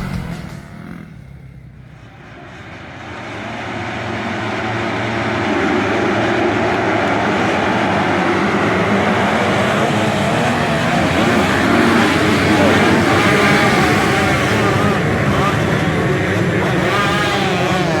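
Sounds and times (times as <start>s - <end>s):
motocross motorcycle engines: 0.0s - 18.0s.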